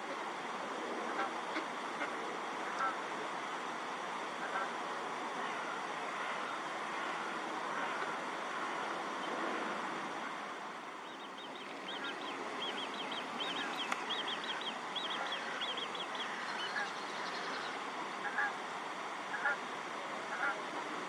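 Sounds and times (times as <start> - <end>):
steady hiss: 0.0 - 21.0
lower bird calls: 11.0 - 18.5.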